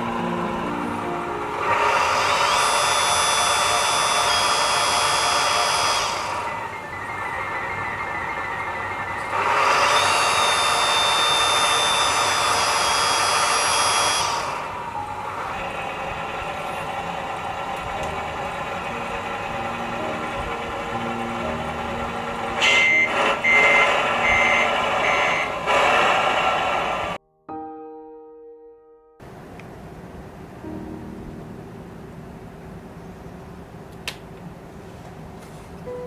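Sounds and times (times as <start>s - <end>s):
model truck whirring: 0.0s - 27.2s
reversing beeper: 0.0s - 27.2s.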